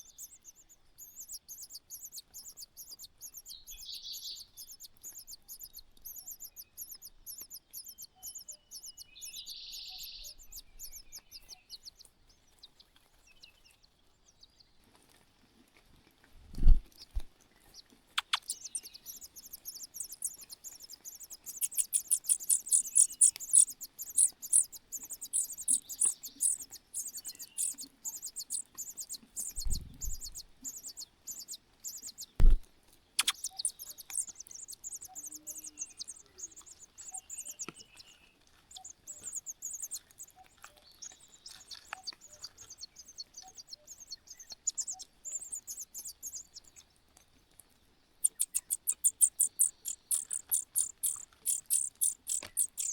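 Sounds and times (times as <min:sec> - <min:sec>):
nestlings begging chirps: 0:00.0 - 0:13.8, 0:17.0 - 0:47.0, 0:48.1 - 0:52.9
loud thumps: 0:32.4 - 0:32.6.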